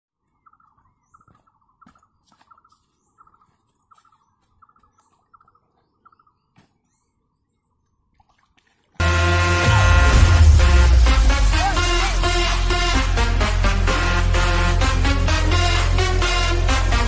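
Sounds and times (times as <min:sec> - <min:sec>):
faint birdsong: 0:00.1 - 0:09.0.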